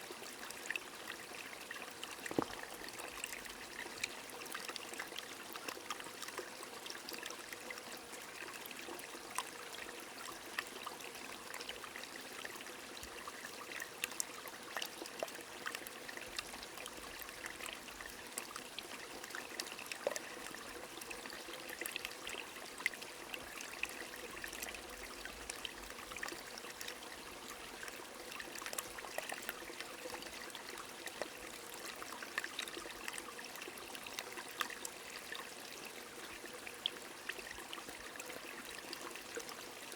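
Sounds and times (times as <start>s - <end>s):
stream trickling: 0.0s - 39.9s
water drips: 2.2s - 2.9s.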